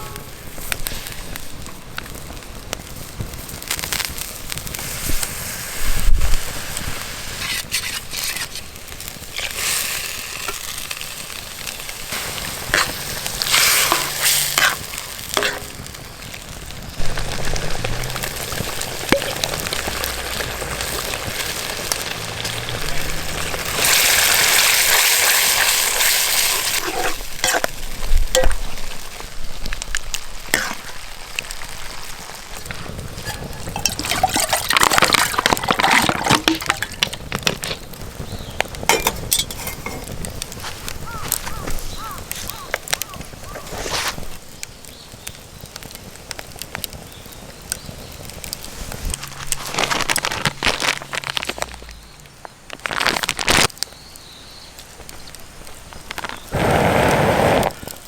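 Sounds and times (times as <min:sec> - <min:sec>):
food sizzling in a pan: 0:00.0 - 0:52.1, 0:52.8 - 0:58.0
stirring knocks: 0:33.2 - 0:37.4.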